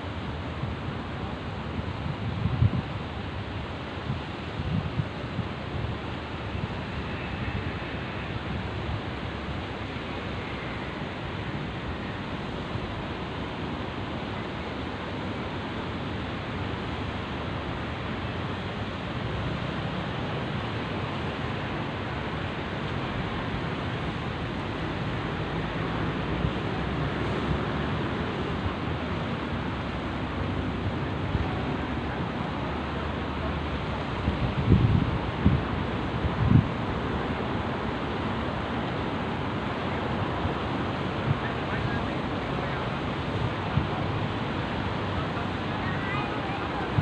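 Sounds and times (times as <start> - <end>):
sea surf washing on shore: 0.0 - 47.0
wind buffeting microphone: 1.8 - 3.3, 3.9 - 13.1, 33.8 - 47.0.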